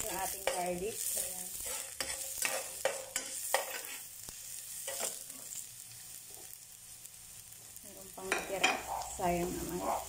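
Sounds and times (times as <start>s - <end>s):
metal spoon scraping pan: 0.0s - 5.3s
onion sizzling in hot oil: 0.0s - 10.0s.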